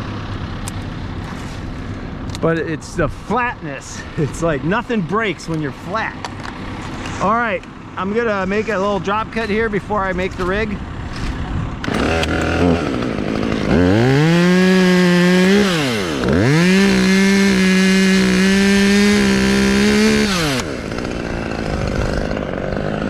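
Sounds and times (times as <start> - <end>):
chainsaw revving: 9.0 - 23.0.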